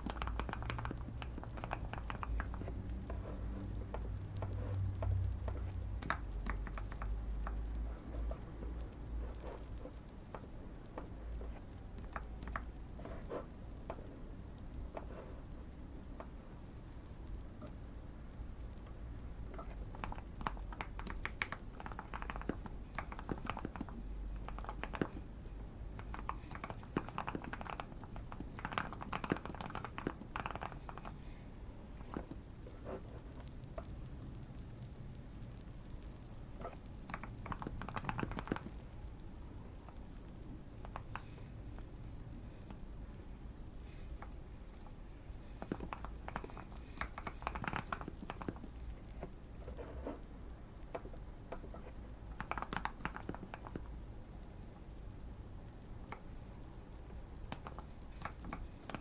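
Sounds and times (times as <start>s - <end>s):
mechanical keyboard typing: 0.0s - 16.4s, 19.6s - 31.2s, 36.6s - 39.0s, 45.6s - 53.9s
faint fireplace crackling: 0.0s - 59.0s.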